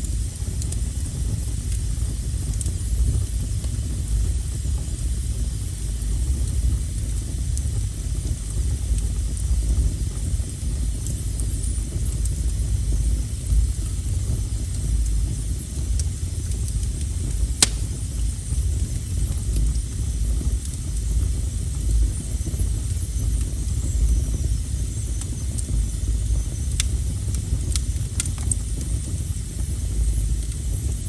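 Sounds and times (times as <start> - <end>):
faint fire crackles: 0.0 - 31.0
wood fire rumbling: 0.0 - 31.0
sharp pop: 17.6 - 18.0.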